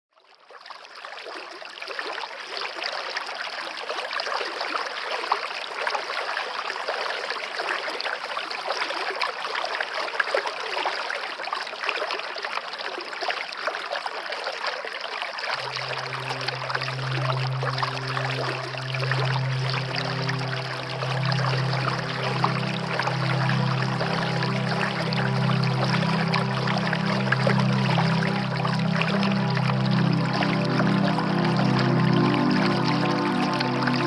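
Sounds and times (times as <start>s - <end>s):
stream water flowing: 0.3s - 34.0s
low held note: 15.6s - 34.0s.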